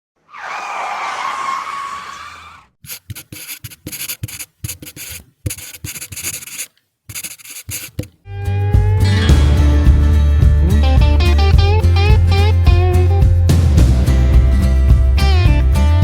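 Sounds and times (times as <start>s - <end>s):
short scraping strokes: 2.8s - 8.2s
guitar music: 8.3s - 16.0s.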